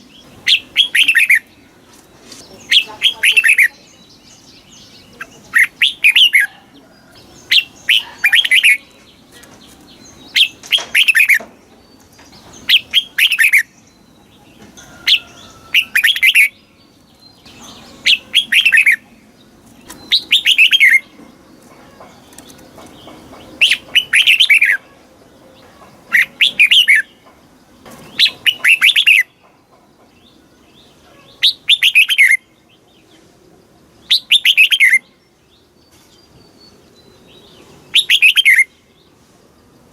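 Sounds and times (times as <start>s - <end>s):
bird singing whistled notes: 0.0s - 1.6s, 7.4s - 19.1s, 19.8s - 21.4s, 23.6s - 24.9s, 26.1s - 27.2s, 28.1s - 29.4s, 30.8s - 33.0s, 34.0s - 39.0s.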